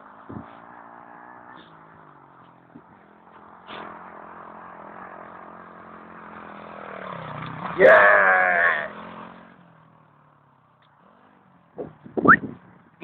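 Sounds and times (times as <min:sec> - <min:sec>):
small motorbike engine running: 0:00.0 - 0:10.3.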